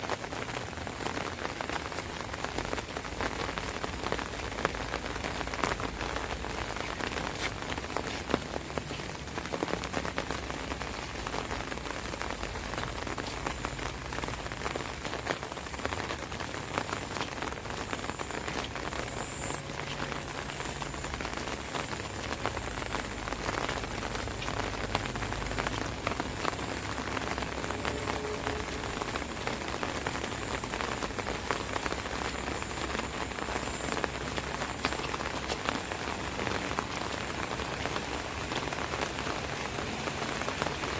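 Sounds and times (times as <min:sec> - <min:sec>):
rain on an umbrella: 0:00.0 - 0:40.9.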